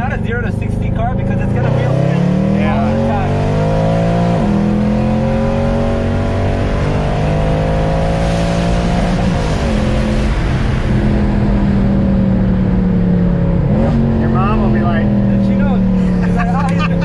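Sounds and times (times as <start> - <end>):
car engine pulling hard: 0.0 - 17.0.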